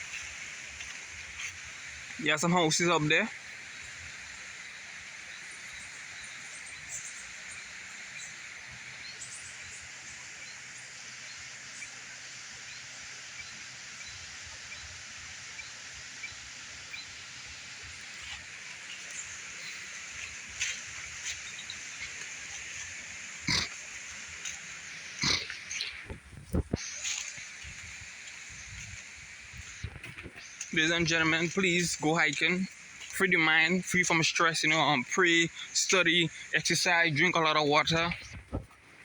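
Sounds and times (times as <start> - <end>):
steady outdoor hiss: 0.0 - 39.0
short animal calls: 23.4 - 24.0, 24.6 - 26.2.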